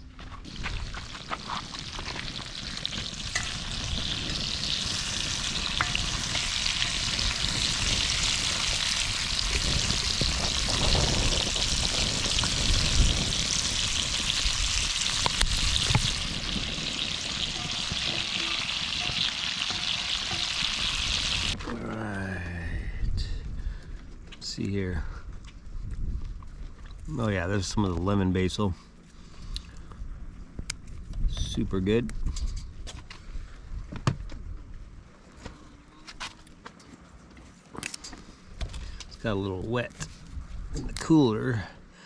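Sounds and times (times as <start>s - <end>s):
food sizzling in a skillet: 0.5s - 21.6s.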